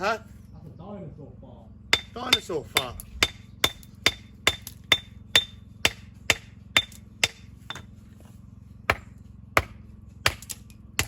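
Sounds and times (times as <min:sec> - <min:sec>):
hammer striking stone: 0:01.9 - 0:07.9, 0:08.9 - 0:11.0.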